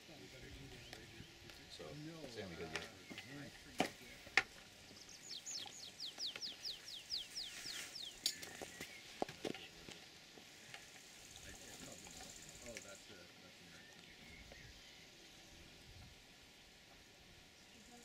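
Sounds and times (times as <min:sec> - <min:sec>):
bird singing whistled notes: 0:04.9 - 0:09.2, 0:13.7 - 0:15.5.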